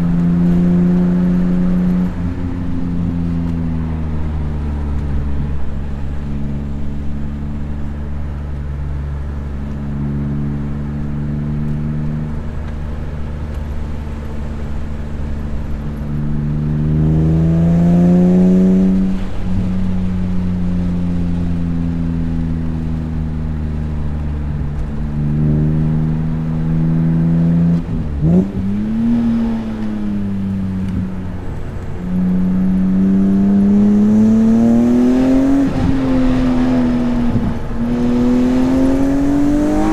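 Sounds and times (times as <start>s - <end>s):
car engine revving hard: 16.3s - 19.4s, 25.2s - 29.8s, 32.0s - 39.9s.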